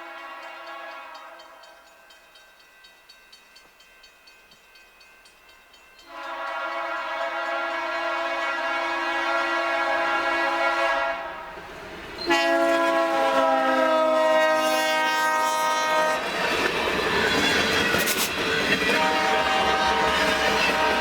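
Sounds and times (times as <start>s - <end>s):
locomotive air horn: 0.0s - 1.7s, 6.1s - 11.6s, 12.2s - 16.2s, 18.9s - 21.0s
train rumbling and clattering past: 0.0s - 21.0s.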